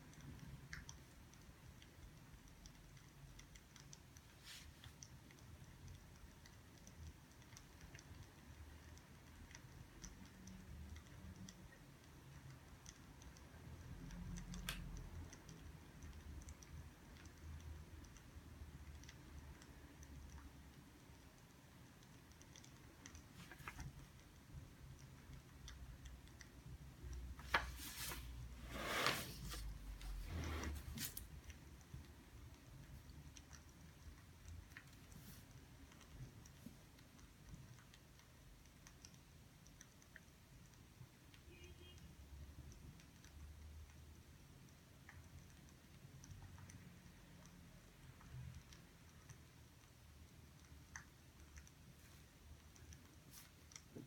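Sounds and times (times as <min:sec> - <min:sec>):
paper rustling: 0:27.4 - 0:29.7.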